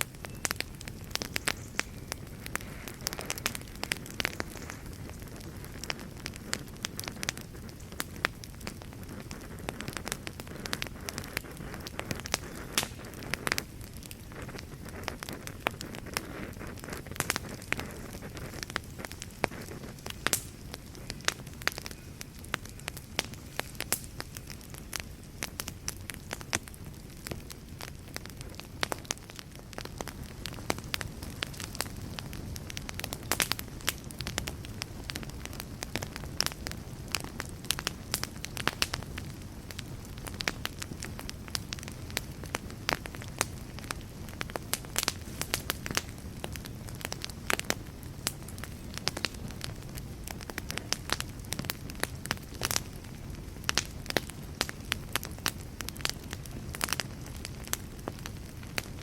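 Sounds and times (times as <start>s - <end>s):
low rumble of flames: 0.0s - 59.0s
wood fire crackling and popping: 0.0s - 59.0s.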